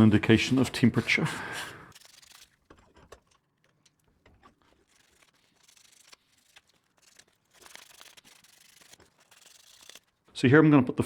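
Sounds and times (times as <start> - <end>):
abrasive rubbing on steel: 4.6 - 10.1.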